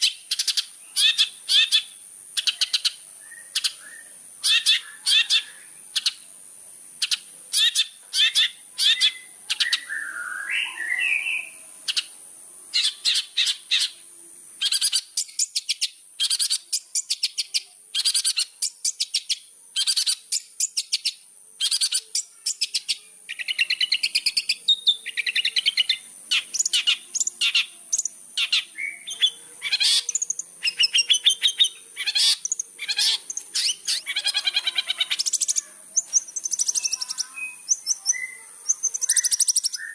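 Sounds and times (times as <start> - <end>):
bird chattering song: 0.0 - 6.3, 7.0 - 14.0, 14.6 - 39.9.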